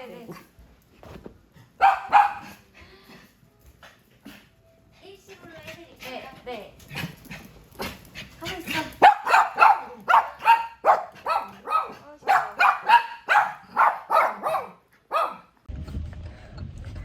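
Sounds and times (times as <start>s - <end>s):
small dog barking: 1.8s - 2.6s, 9.0s - 15.5s.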